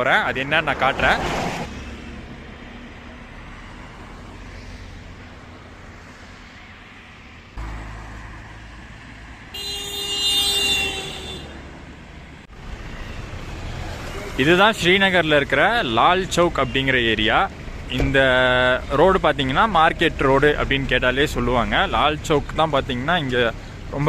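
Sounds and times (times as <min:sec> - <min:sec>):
street traffic rumbling: 0:00.0 - 0:24.0
vehicle horn honking: 0:09.5 - 0:11.7.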